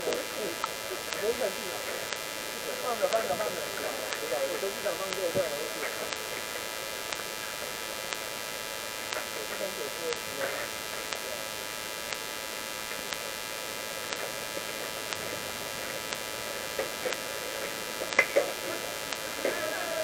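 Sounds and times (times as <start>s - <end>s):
electrical hiss and hum: 0.0s - 20.0s
faint ticks: 0.0s - 20.0s.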